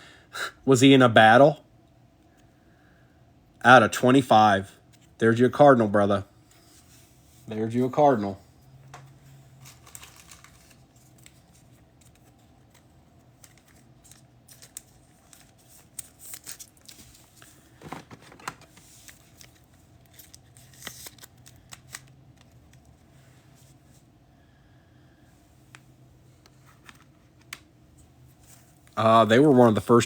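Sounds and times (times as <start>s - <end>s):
crinkly rustles: 9.0s - 24.0s.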